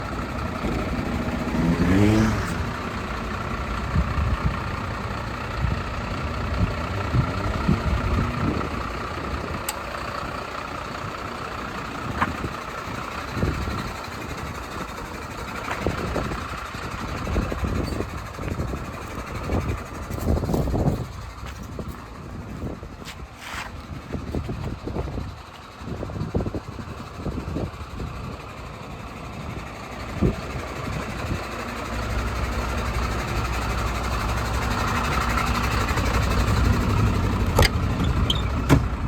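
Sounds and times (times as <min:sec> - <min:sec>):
truck diesel engine revving: 0:00.0 - 0:20.9, 0:29.7 - 0:39.0.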